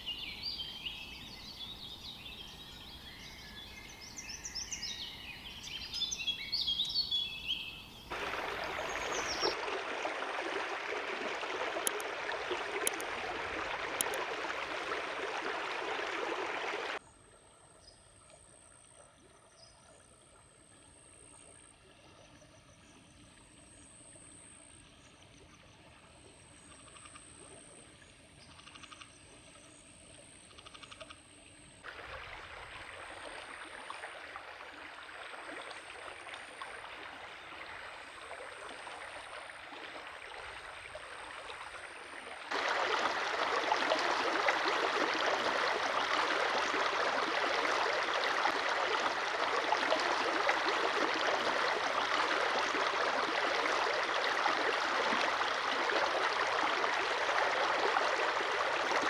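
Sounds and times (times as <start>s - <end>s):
stream water rushing: 0.0s - 17.0s, 31.8s - 59.0s.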